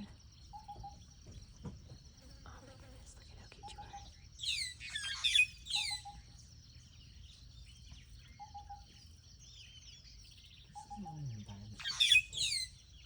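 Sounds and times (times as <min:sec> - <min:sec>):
high bird chirping: 0:02.4 - 0:13.0
downward-sweeping bird calls: 0:04.4 - 0:06.4, 0:11.8 - 0:13.0.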